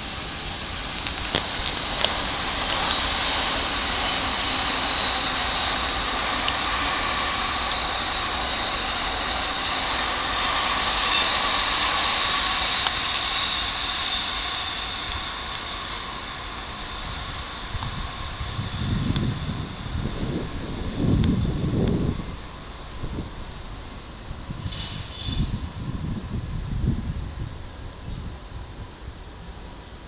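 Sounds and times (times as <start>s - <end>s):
train rolling on tracks: 0.0s - 30.0s
faint clicks: 6.1s - 6.8s.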